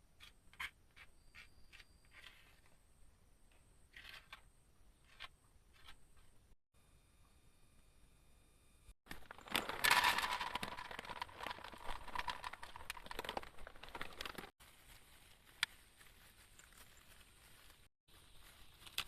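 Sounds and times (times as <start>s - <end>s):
dense crackling and rustling: 9.1s - 19.0s.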